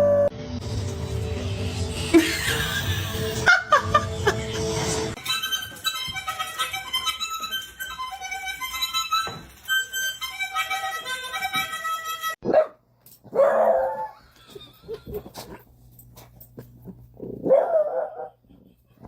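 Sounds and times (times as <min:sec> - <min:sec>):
background music: 0:00.0 - 0:12.4
dog barking: 0:12.4 - 0:14.1, 0:17.4 - 0:18.4.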